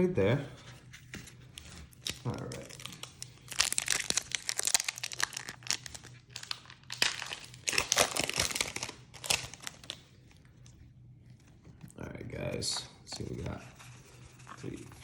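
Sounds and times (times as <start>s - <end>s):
foil wrapper crinkling and tearing: 1.8s - 10.4s.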